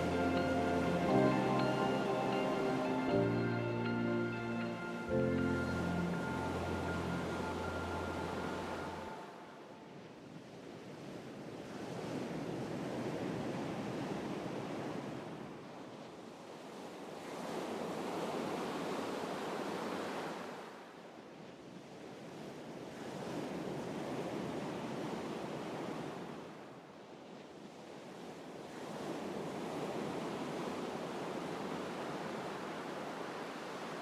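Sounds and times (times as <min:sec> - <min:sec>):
ocean waves washing in: 0:00.0 - 0:09.8.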